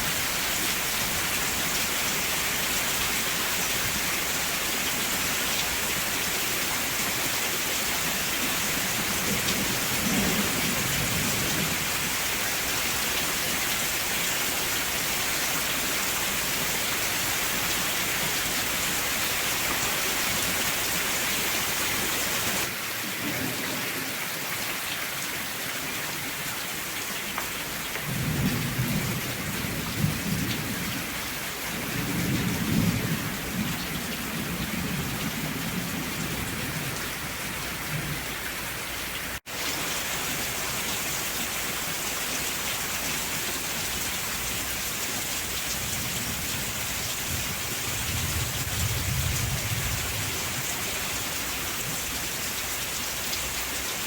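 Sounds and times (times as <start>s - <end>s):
steady rain: 0.0s - 54.0s
thunder rumbling: 9.0s - 12.2s, 28.0s - 31.1s, 31.8s - 38.3s, 45.8s - 50.7s.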